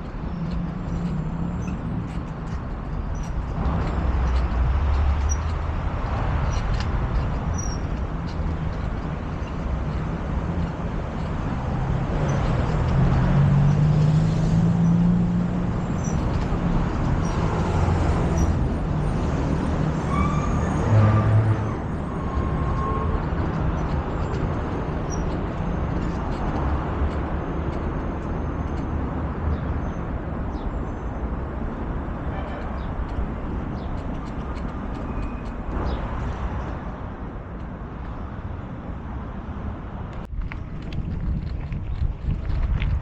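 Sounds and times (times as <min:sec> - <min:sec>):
traffic and road rumble: 0:00.0 - 0:43.0
wind noise: 0:31.2 - 0:43.0.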